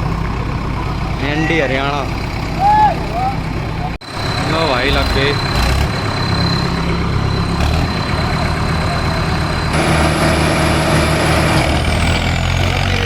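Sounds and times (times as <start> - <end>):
diesel tractor engines running hard: 0.0 - 13.0
high steady whine: 9.2 - 11.7.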